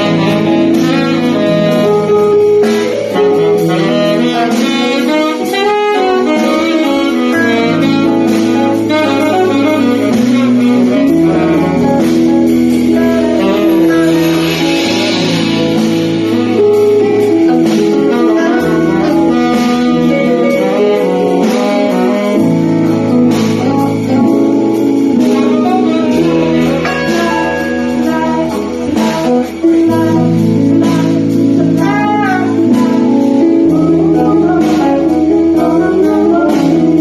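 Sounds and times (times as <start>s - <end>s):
lead horn line: 0.0s - 30.9s
live band playing: 0.0s - 37.0s.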